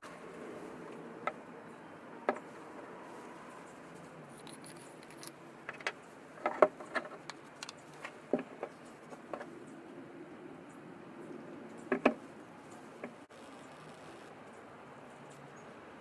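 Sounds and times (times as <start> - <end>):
small metal parts clinking: 4.3 - 8.0.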